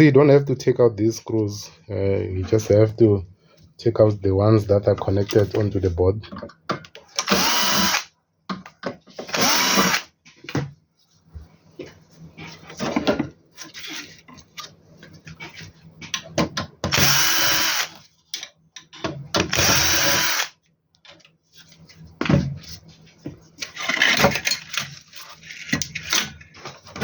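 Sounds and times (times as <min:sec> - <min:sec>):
electric screwdriver whine: 0:07.2 - 0:08.1, 0:09.3 - 0:10.1, 0:16.9 - 0:18.0, 0:19.5 - 0:20.6.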